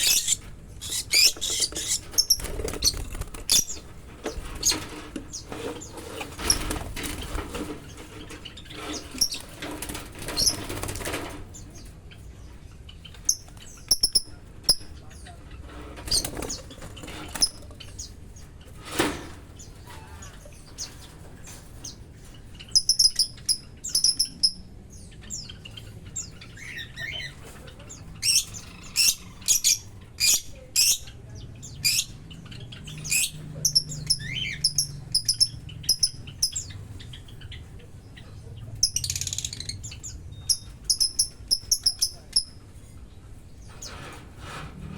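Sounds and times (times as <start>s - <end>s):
high bird chirps: 0.0s - 3.8s, 13.0s - 14.9s, 22.6s - 24.6s, 32.8s - 37.4s, 38.8s - 42.6s
wings fluttering and rustling: 0.0s - 22.9s.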